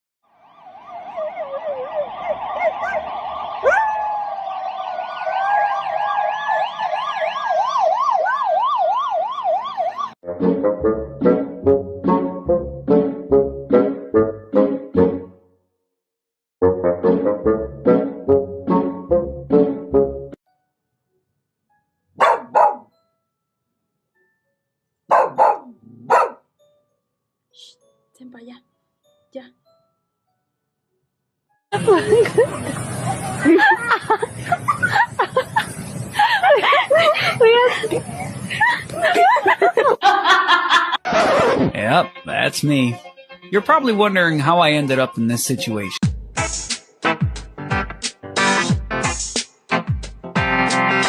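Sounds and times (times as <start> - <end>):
steady siren tone: 0.2 - 10.2
siren wailing: 0.3 - 10.2
dog barking: 2.6 - 3.0, 22.2 - 22.9, 25.1 - 26.4.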